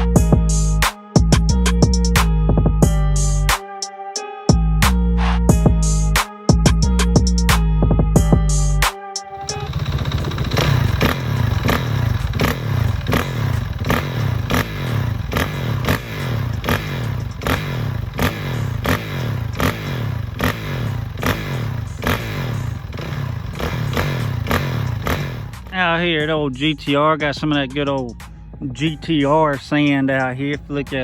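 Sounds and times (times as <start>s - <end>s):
regular engine clatter: 9.3s - 25.8s
dirt bike engine running: 9.3s - 26.2s.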